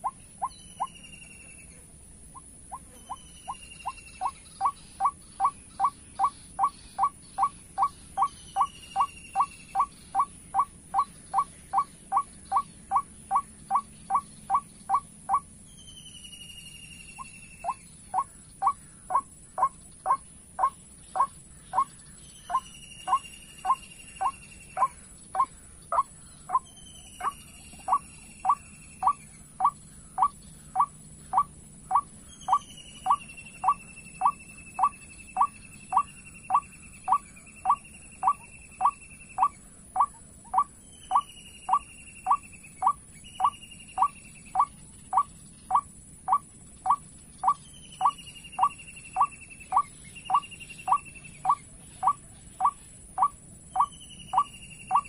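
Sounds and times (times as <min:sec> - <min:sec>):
high insect buzz: 0:00.0 - 0:55.0
repeating bird call: 0:02.3 - 0:15.5, 0:17.2 - 0:21.9, 0:22.5 - 0:55.0.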